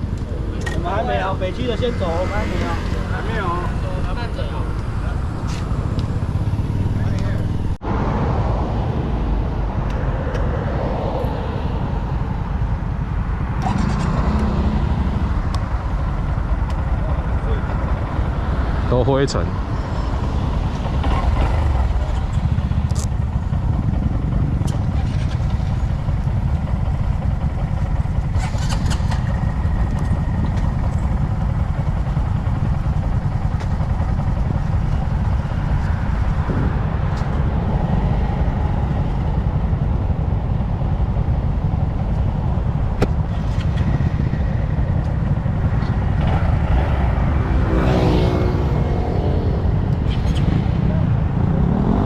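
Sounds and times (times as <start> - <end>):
motorcycle accelerating: 0.0 - 52.0
motorcycle engines running: 0.0 - 52.0
wind rumble on microphone: 3.7 - 52.0.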